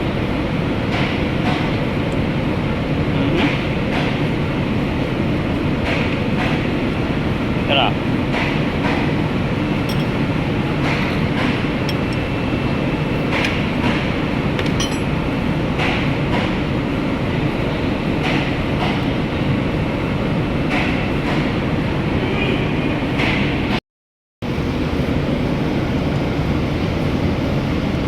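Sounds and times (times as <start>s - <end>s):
hand tools clinking on metal: 14.6s - 15.2s.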